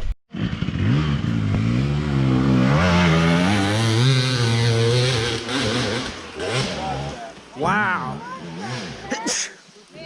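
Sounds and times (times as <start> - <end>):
dirt bike engine revving: 0.3 - 9.2.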